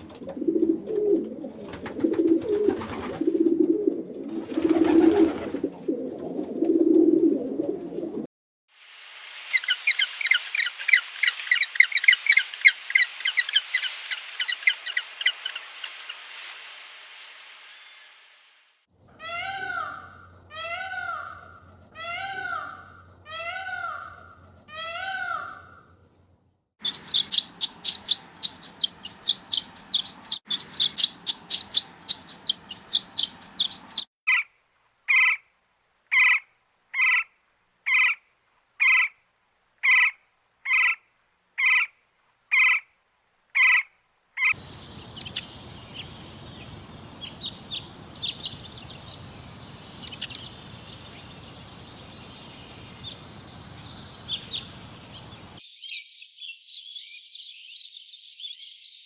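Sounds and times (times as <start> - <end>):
outdoor hiss: 8.7 - 18.9, 44.6 - 55.6
faint bird calls: 43.6 - 55.6
bird chirping rapidly: 44.4 - 55.6.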